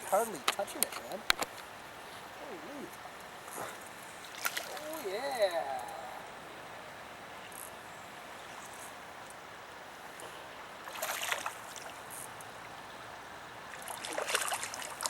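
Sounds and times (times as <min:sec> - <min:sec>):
creek water running: 0:00.0 - 0:15.0
water splashing: 0:02.8 - 0:06.3, 0:10.2 - 0:15.0.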